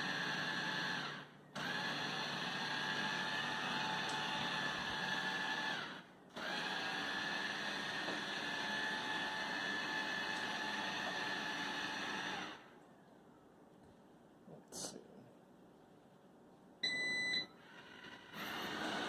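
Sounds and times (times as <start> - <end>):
robot vacuum whine: 0.0 - 12.6.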